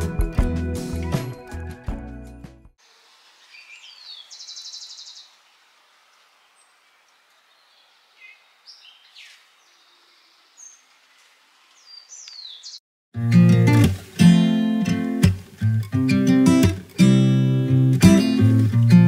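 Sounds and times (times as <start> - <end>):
birds singing: 3.4 - 5.5, 6.4 - 10.9, 11.7 - 12.8.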